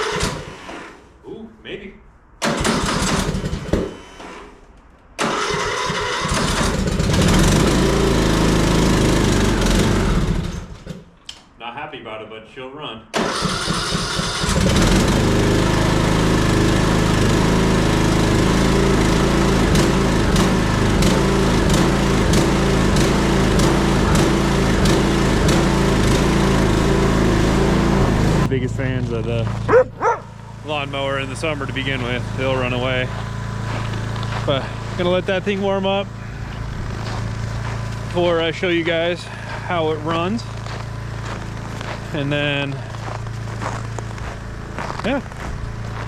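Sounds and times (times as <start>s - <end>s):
lawn tractor engine sputtering: 0.0s - 1.0s, 2.4s - 4.2s, 5.2s - 11.4s, 13.2s - 46.0s.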